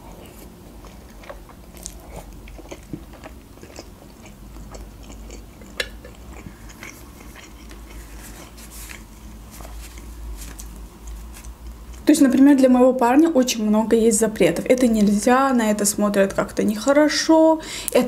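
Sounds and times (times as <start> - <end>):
chewing soft dough: 0.0 - 12.4
wet mouth clicks: 4.7 - 7.9
paper napkin rustling: 7.9 - 11.6.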